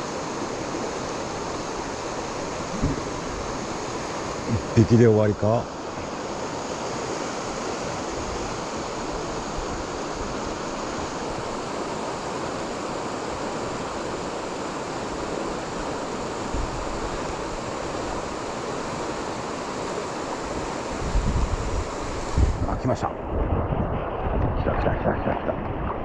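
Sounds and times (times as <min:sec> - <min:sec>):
river water rushing: 0:00.0 - 0:23.4
low bump on microphone: 0:02.7 - 0:03.5.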